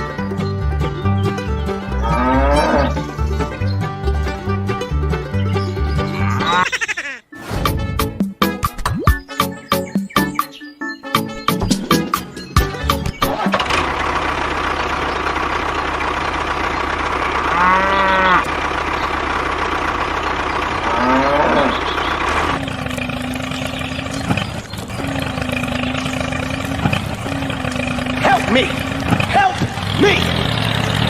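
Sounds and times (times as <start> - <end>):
cow mooing: 2.0 - 3.0, 6.1 - 6.7, 17.4 - 18.5, 20.8 - 21.9
small engine running: 13.3 - 31.0.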